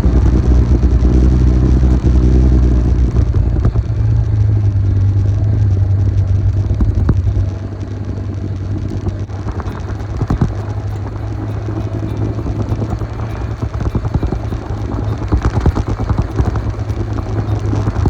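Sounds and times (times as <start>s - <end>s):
motorcycle engine running: 0.0s - 18.0s
wind buffeting on microphone: 0.0s - 18.0s.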